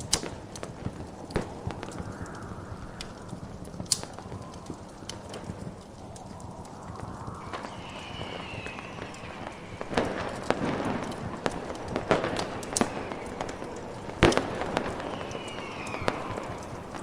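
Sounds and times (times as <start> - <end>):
fireworks popping and banging: 0.0 - 17.0
hiss of snowstorm wind: 0.0 - 17.0.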